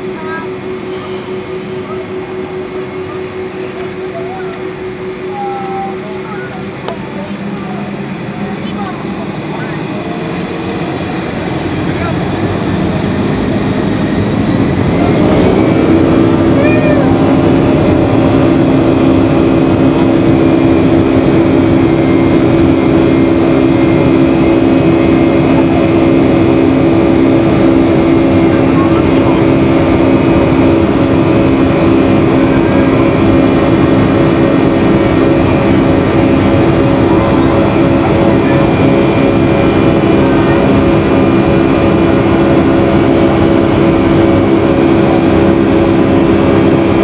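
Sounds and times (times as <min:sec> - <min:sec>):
jet engines rumbling in cabin: 0:00.0 - 0:47.0.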